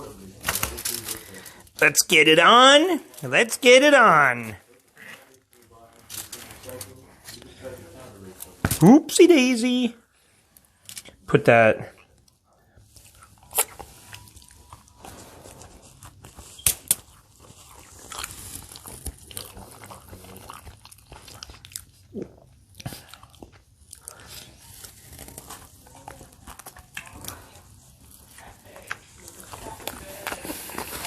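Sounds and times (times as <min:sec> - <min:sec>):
person chewing crunchy food: 0:12.0 - 0:31.0.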